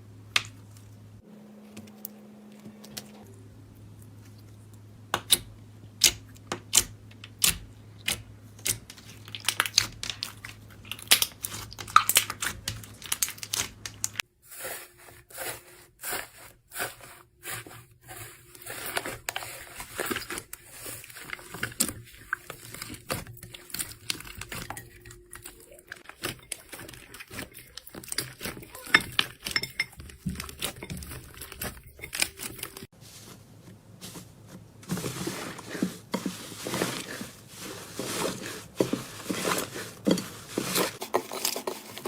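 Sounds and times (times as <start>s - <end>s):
crunchy crinkly crackling: 8.8s - 14.2s, 17.5s - 42.0s.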